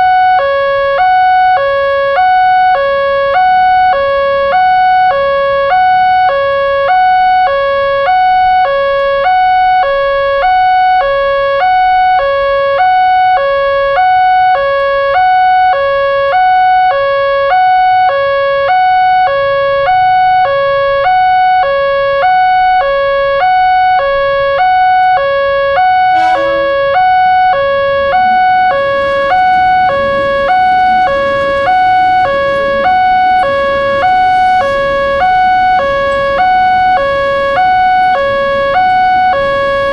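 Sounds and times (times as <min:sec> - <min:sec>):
level crossing alarm two tones: 0:25.8 - 0:39.9
rushing noise: 0:25.9 - 0:39.9.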